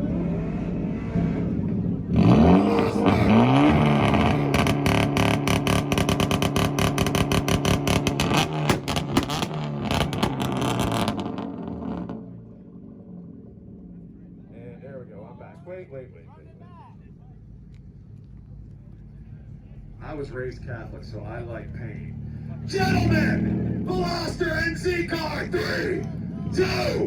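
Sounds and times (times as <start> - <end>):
car engine revving: 0.0 - 27.0
rev limiter popping: 1.6 - 14.5.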